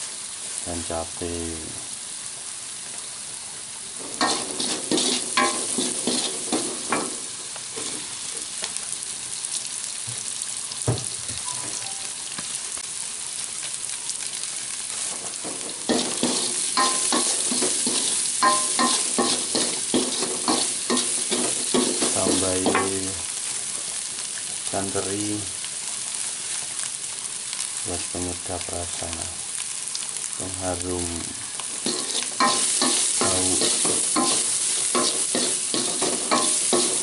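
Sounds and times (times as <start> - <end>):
food sizzling in hot oil: 0.0 - 37.0
spatula scraping wok: 3.9 - 8.4, 14.9 - 23.0, 31.3 - 37.0.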